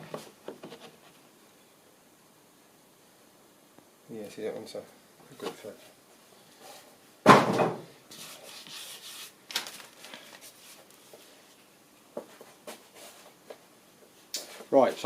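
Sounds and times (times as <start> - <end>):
wood scraping against wood: 0.0 - 1.2.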